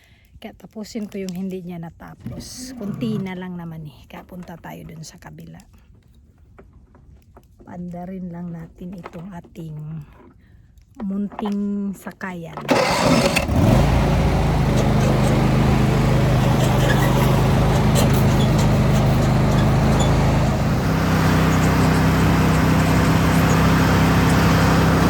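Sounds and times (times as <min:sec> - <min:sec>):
engine starting and running: 0:12.6 - 0:25.0.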